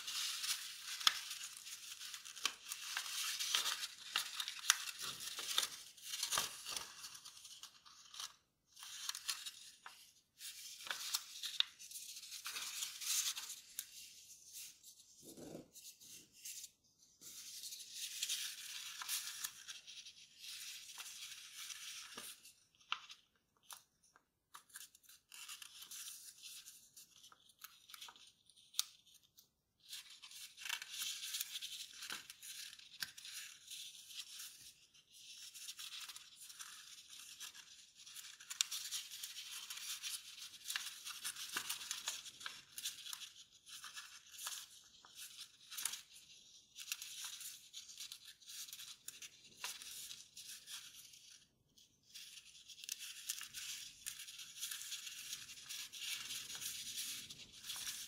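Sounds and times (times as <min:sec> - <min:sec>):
paper sharp crackles: 0:00.0 - 0:14.7, 0:35.3 - 0:51.4
paper rustling and crinkling: 0:00.0 - 0:58.0.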